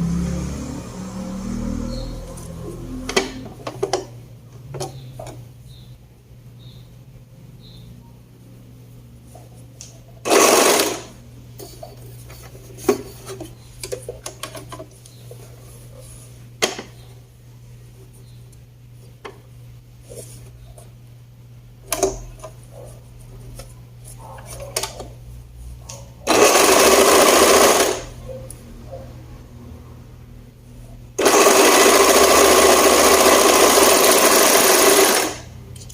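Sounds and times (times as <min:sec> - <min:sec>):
sewing machine stitching: 0:10.3 - 0:11.2, 0:26.3 - 0:28.2, 0:31.2 - 0:35.5
steady low hum: 0:10.9 - 0:26.3.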